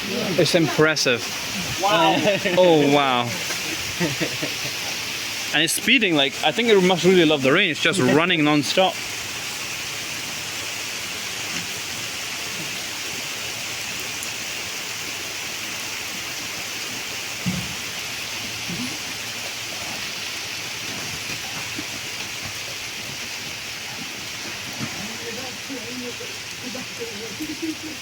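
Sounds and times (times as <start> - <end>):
rain falling: 0.0 - 28.0.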